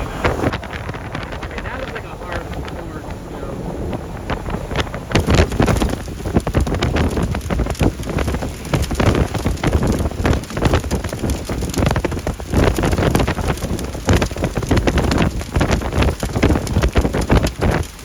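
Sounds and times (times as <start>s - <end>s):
hail and rain pelting: 0.0s - 18.0s
wind buffeting microphone: 0.0s - 18.0s.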